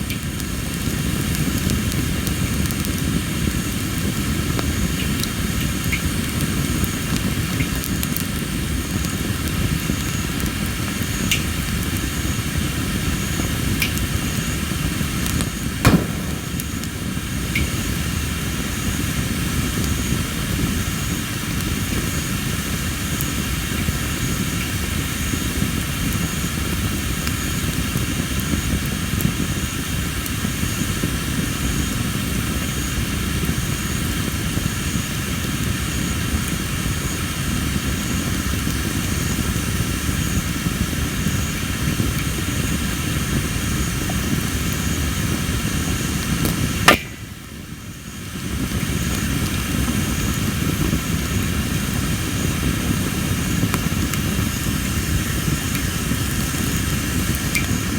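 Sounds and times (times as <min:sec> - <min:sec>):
firewood burning: 0:00.0 - 0:57.9
wood popping loudly: 0:15.9 - 0:17.7, 0:46.9 - 0:47.3.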